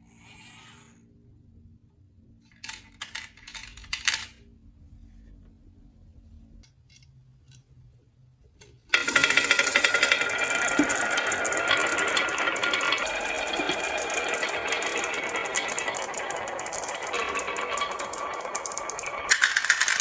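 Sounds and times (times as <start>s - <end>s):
many marbles rolling clatter: 8.9s - 20.0s
marbles clacking on wooden run: 8.9s - 20.0s.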